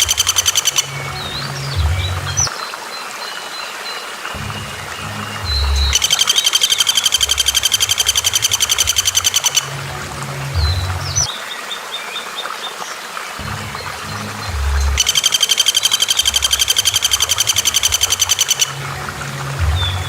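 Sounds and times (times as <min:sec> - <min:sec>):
bird rattling trill: 0:00.0 - 0:00.9, 0:05.9 - 0:09.7, 0:15.0 - 0:18.7.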